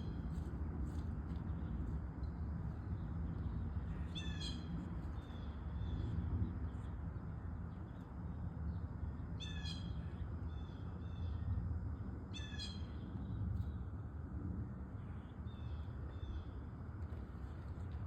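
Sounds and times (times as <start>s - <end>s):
low background rumble: 0.0s - 18.0s
blue jay harsh calls: 4.0s - 4.7s, 9.4s - 11.4s, 12.3s - 13.0s.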